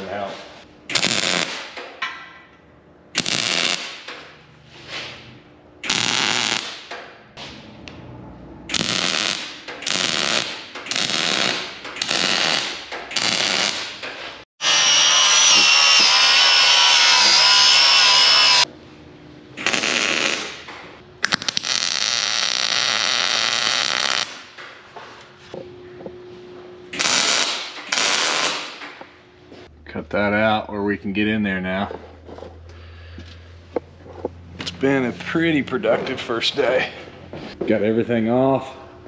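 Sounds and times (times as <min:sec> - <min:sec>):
power tool with high whine: 0:14.6 - 0:18.7.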